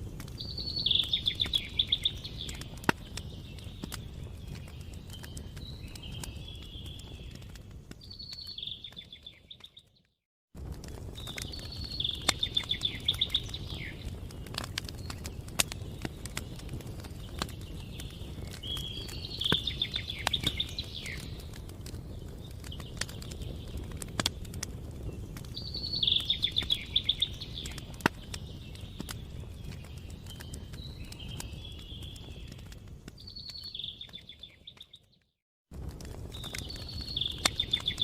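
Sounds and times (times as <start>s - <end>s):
campfire crackling: 0.0s - 9.8s, 10.6s - 38.0s
songbird trilling: 25.6s - 27.8s.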